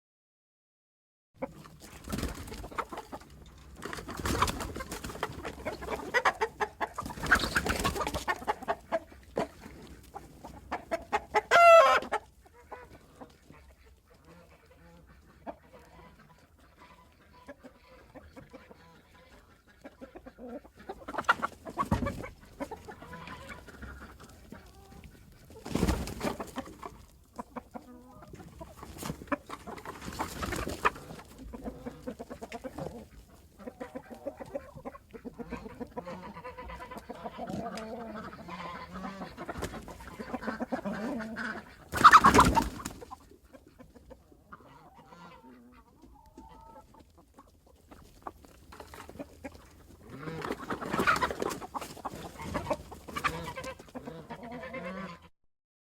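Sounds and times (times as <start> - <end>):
chicken clucking: 1.4 - 55.3
wings flapping: 2.0 - 2.8, 3.9 - 5.4, 25.5 - 26.8, 28.8 - 31.1, 41.9 - 43.1
chicken squawking: 4.2 - 9.6, 10.4 - 13.2, 14.2 - 46.8, 50.0 - 55.3.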